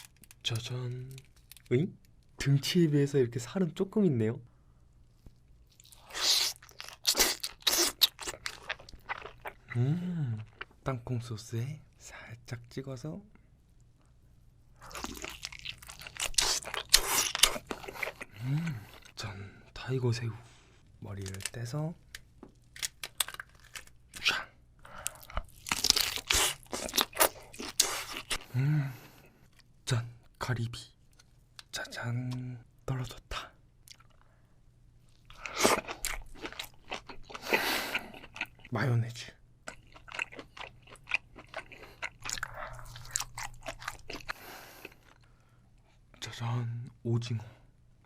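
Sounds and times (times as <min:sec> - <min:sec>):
person chewing crunchy food: 0:05.7 - 0:10.7, 0:14.8 - 0:19.2, 0:22.7 - 0:24.4, 0:25.0 - 0:28.6, 0:35.1 - 0:38.7, 0:39.6 - 0:45.3
prawn shell cracking: 0:21.2 - 0:24.2.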